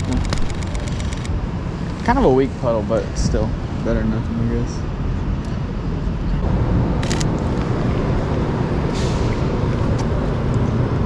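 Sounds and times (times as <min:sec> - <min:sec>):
sharp clicks: 0:00.0 - 0:02.1, 0:07.0 - 0:07.8
traffic rumble: 0:00.0 - 0:11.0.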